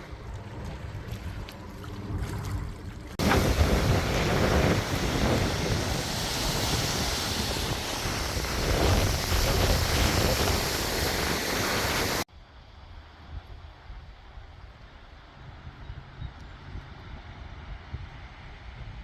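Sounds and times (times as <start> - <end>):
strong wind buffeting microphone: 3.1 - 12.3.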